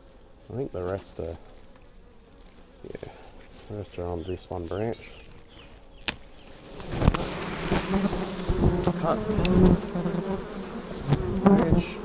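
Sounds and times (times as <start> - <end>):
bee swarm buzzing: 0.0 - 12.0.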